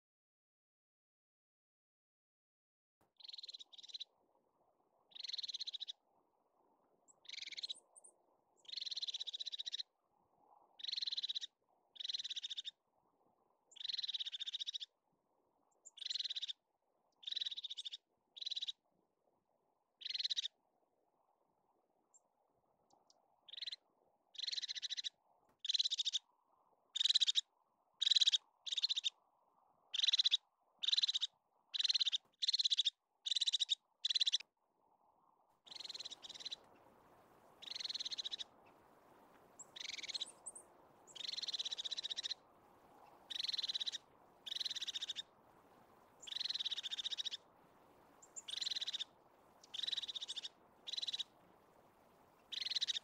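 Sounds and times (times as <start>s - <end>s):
faint background hiss: 35.6s - 53.0s.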